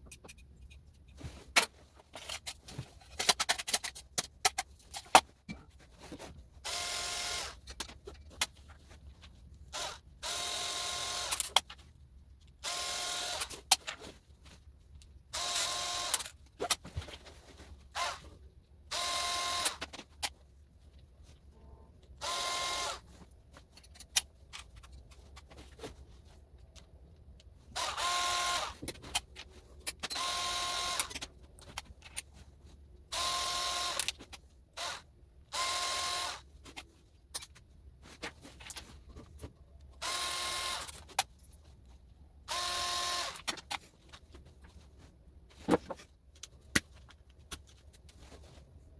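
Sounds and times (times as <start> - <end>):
power tool whining: 22.2 - 23.0, 42.5 - 43.4.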